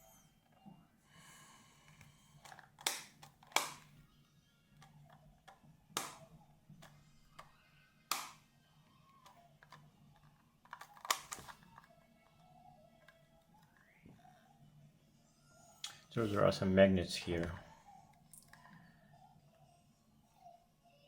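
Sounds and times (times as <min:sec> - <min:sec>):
clicks and taps of a speed cube: 0:01.9 - 0:03.9, 0:05.1 - 0:06.2, 0:08.1 - 0:08.4, 0:10.6 - 0:11.9
packaging being handled: 0:10.7 - 0:11.9.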